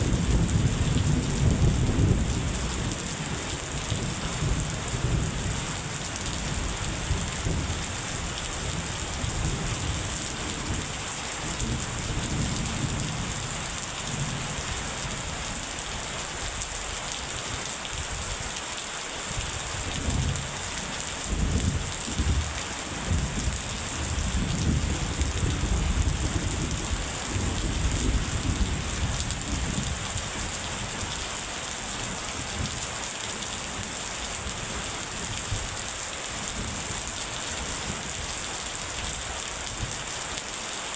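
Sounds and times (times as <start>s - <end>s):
low thunder rumbles: 0.0s - 15.3s, 21.3s - 31.1s
rain hissing down: 0.0s - 40.9s.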